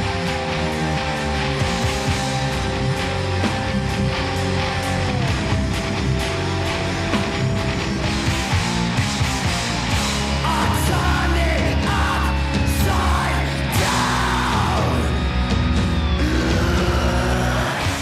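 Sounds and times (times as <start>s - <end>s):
punk rock band music: 0.0s - 18.0s
shouted vocal: 10.4s - 15.3s, 16.1s - 18.0s.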